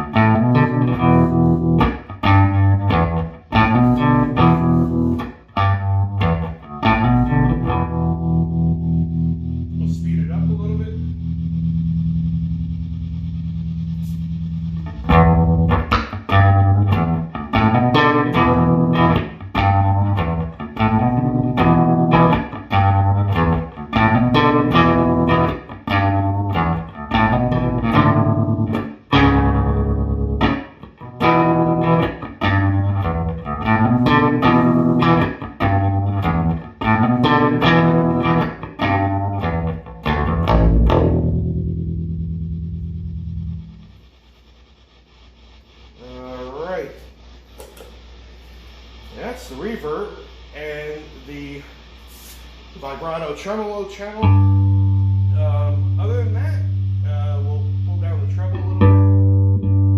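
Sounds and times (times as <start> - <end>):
electric bass guitar riff: 0.0 - 47.8, 54.0 - 59.9.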